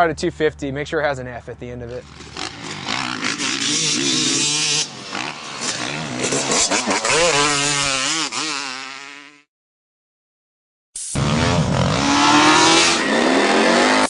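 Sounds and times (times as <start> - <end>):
motocross bike engine revving: 2.0 - 9.5, 11.2 - 14.0.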